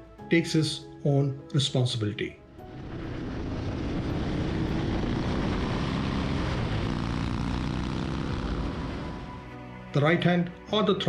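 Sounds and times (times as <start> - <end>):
wind rush: 2.6 - 8.2
motorcycle engine drone: 2.6 - 9.7.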